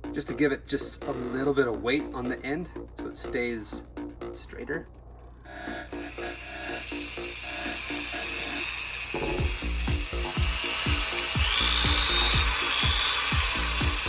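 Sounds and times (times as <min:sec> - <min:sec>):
music with drum beat: 0:00.0 - 0:04.5, 0:09.2 - 0:14.0
electric drill whining: 0:05.9 - 0:14.0.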